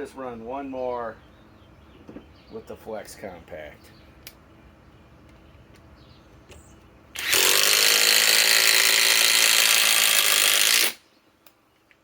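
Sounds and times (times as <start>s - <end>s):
impact driver driving screw: 7.2s - 11.0s.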